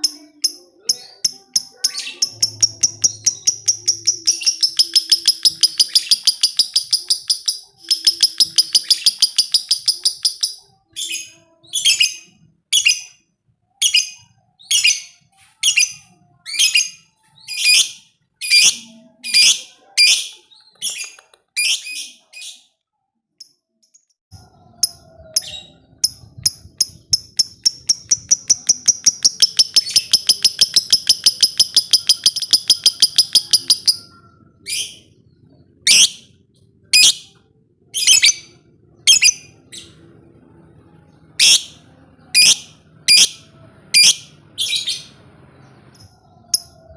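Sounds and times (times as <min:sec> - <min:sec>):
lovebird chattering trills: 0:00.1 - 0:12.1, 0:24.8 - 0:35.0
lovebird sharp chirps: 0:00.1 - 0:13.1, 0:24.8 - 0:35.0, 0:38.0 - 0:38.5, 0:39.1 - 0:39.5.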